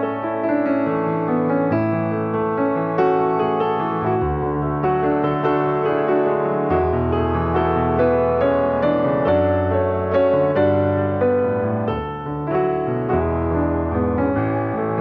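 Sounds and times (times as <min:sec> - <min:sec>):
slow gentle piano piece: 0:00.0 - 0:15.0.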